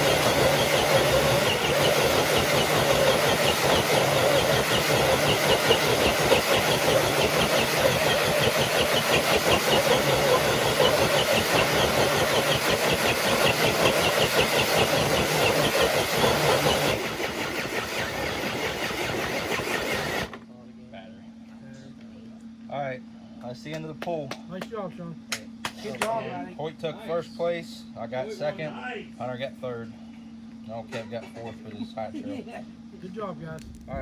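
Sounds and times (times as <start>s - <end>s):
toy truck motor and gears whining: 0.0s - 20.4s.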